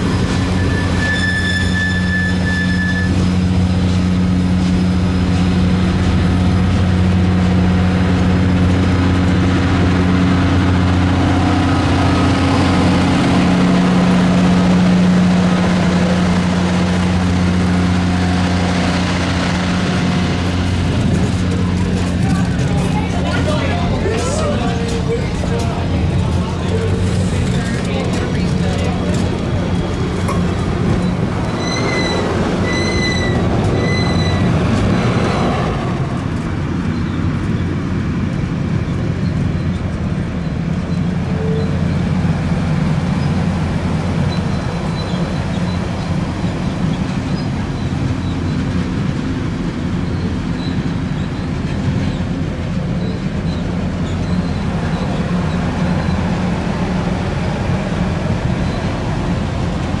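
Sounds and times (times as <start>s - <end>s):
train wheels rumbling on rails: 0.0s - 60.0s
high-pitched wheel squeals: 0.2s - 3.4s, 29.8s - 35.4s.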